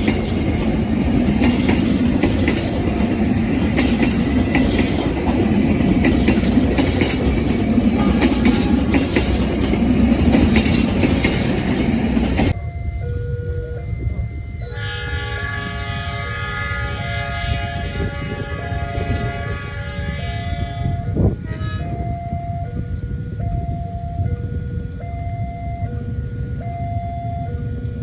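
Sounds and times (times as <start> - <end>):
train wheels clattering on rails: 0.0 - 12.6.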